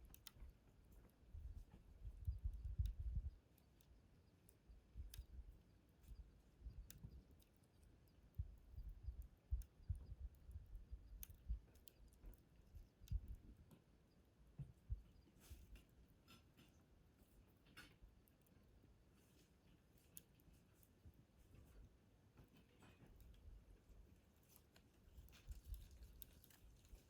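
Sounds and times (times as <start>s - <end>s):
campfire pops and crackles: 0.0s - 13.9s, 24.4s - 27.0s.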